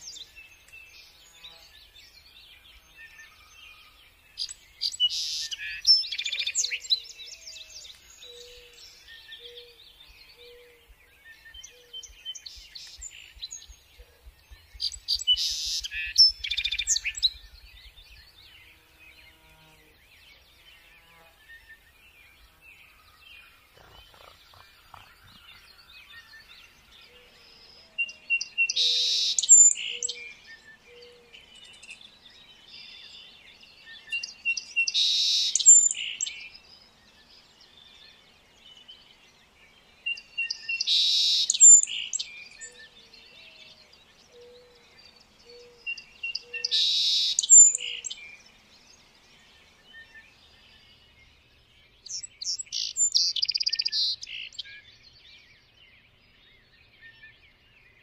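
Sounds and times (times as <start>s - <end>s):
birdsong chirping and whistling: 0.0s - 58.0s.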